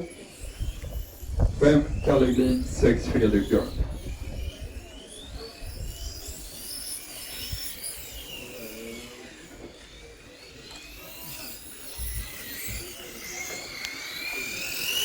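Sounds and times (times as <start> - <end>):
high motor whines: 0.0 - 15.0.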